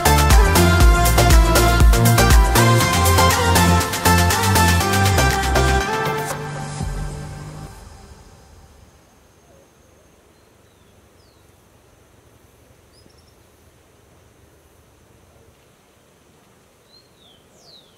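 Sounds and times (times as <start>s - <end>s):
low steady hiss: 6.4s - 17.9s.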